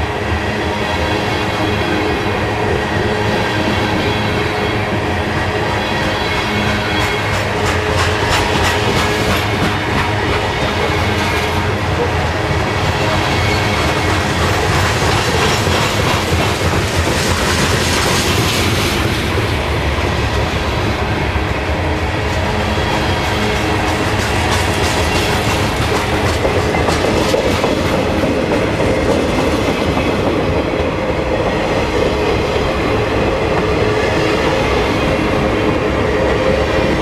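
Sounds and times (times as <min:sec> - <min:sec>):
freight train rumbling: 0:00.0 - 0:37.0
wheels clacking over rail joints: 0:06.2 - 0:20.9, 0:23.1 - 0:31.6.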